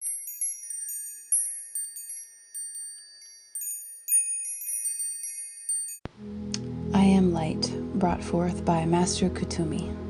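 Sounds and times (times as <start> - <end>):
wind chimes tinkling: 0.0 - 6.0.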